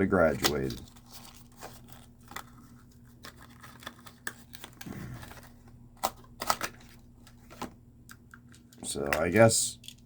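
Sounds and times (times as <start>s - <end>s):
plastic packaging rustling: 0.1s - 7.7s.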